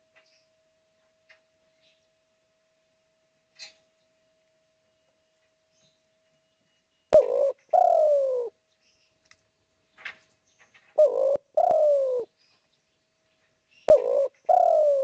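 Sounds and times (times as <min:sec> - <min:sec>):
dove cooing: 0:07.1 - 0:08.6, 0:11.0 - 0:12.3, 0:13.9 - 0:15.0.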